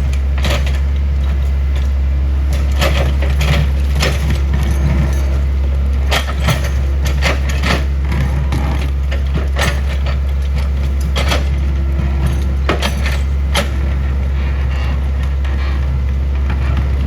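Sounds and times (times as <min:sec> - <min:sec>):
excavator engine droning: 0:00.0 - 0:17.0
sharp knocks and clanks: 0:06.1 - 0:17.0.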